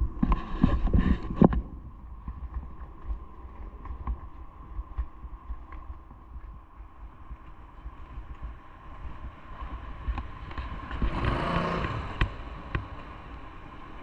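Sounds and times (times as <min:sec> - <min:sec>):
low rumble: 0:00.0 - 0:14.0
vehicle passing by: 0:10.5 - 0:13.4.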